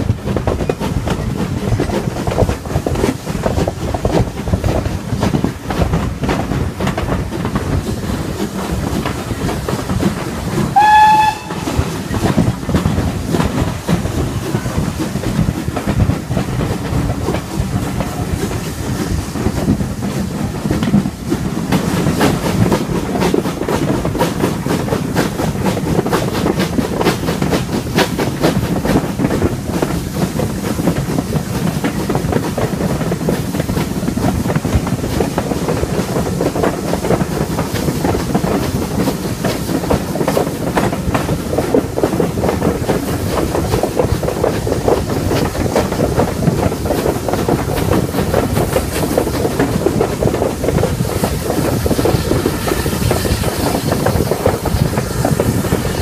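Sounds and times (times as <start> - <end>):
train rumble: 0.0 - 56.0
wheels clicking over rail joints: 0.0 - 56.0
steam whistle blast: 10.7 - 11.8.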